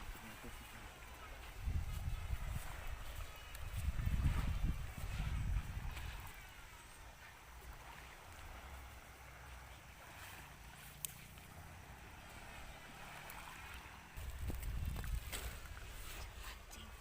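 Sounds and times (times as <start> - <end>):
wind rumble on microphone: 0.0 - 7.2, 11.4 - 17.0
water wash: 0.0 - 17.0.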